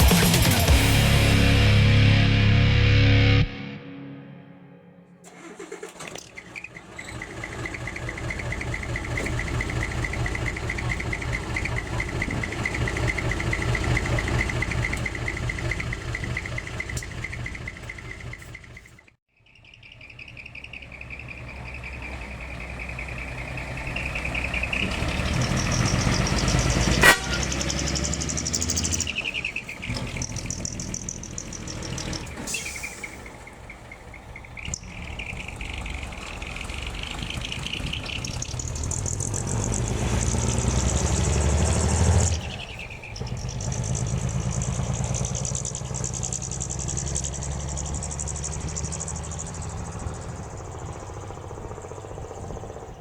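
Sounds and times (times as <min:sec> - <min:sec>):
diesel truck engine revving: 0:05.2 - 0:53.0
whistling intake whoosh: 0:19.6 - 0:53.0.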